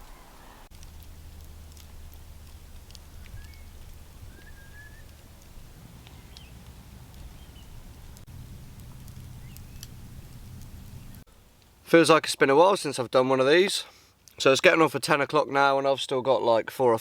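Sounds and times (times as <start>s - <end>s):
faint clicks: 0.0s - 7.5s
low steady hum: 0.0s - 11.9s
bird whistled calls: 3.2s - 3.7s, 4.3s - 5.2s, 7.3s - 7.8s.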